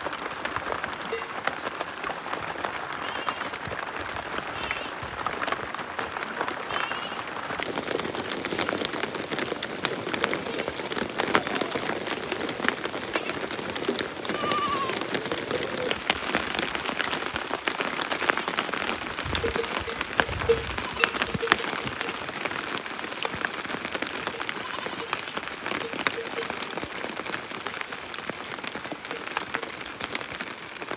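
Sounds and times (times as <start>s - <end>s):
steady rain pattering: 0.0s - 30.9s
sheep bleating: 11.2s - 12.2s, 14.2s - 15.9s, 19.3s - 22.2s, 24.2s - 25.3s.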